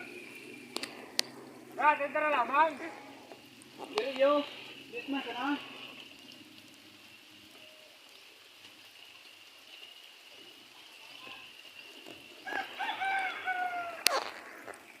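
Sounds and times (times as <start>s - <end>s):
faint steady high tone: 4.0s - 8.3s, 9.7s - 14.1s
rooster crowing: 12.4s - 14.3s.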